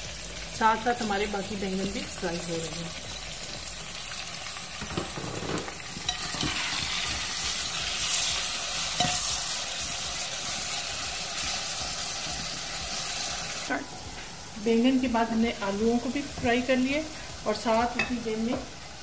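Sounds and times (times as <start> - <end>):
frying in hot oil: 0.0 - 19.0.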